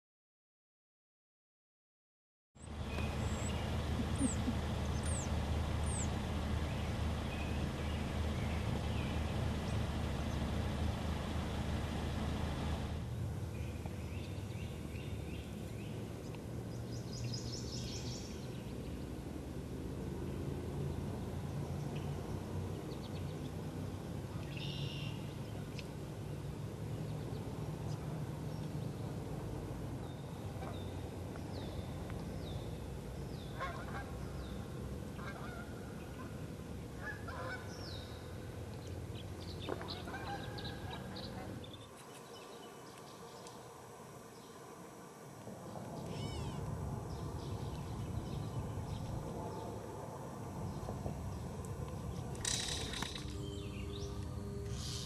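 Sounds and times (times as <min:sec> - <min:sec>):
wild bird calls: 0:02.6 - 0:12.0, 0:33.4 - 0:38.3, 0:39.4 - 0:42.6, 0:46.0 - 0:49.6, 0:54.7 - 0:55.0
low background rumble: 0:02.6 - 0:55.0.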